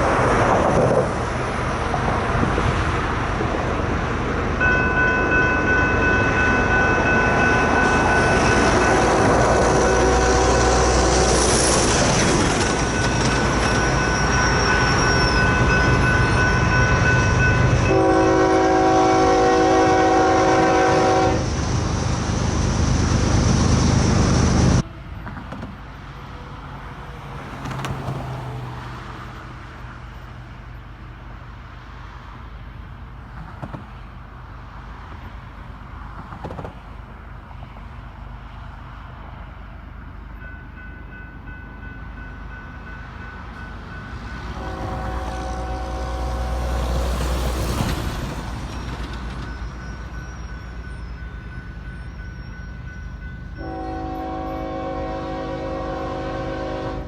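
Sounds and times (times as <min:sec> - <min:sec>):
freight train rumble: 0:00.0 - 0:57.0
traffic noise: 0:00.0 - 0:57.0
locomotive air horn chord: 0:08.4 - 0:11.5, 0:17.8 - 0:21.5, 0:44.6 - 0:46.9, 0:53.6 - 0:57.0.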